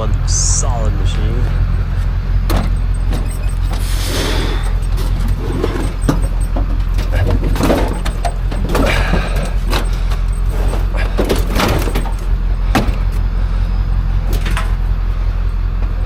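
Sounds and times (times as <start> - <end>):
vehicle engine running: 0.0 - 16.0
sharp knocks and rattles: 1.4 - 13.4.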